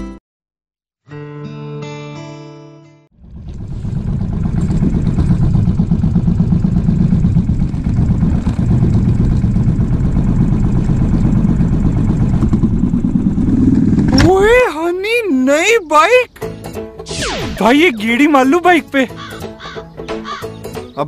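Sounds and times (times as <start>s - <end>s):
guitar tune: 1.1s - 3.1s
motorcycle engine thumping: 3.2s - 14.6s.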